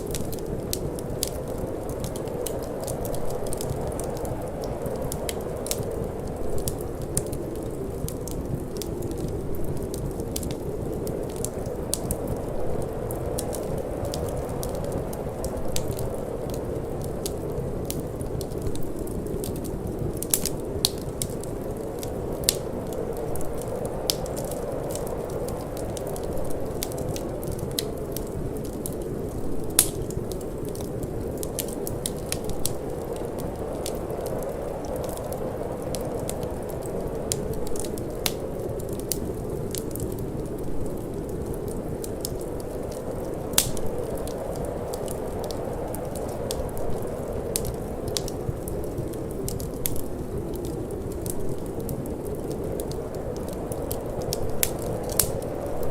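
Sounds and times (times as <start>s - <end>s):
fireplace fire crackling: 0.0s - 55.9s
low rush of wind: 0.0s - 55.9s
sharp pops of fire: 29.8s - 35.2s, 43.5s - 46.6s.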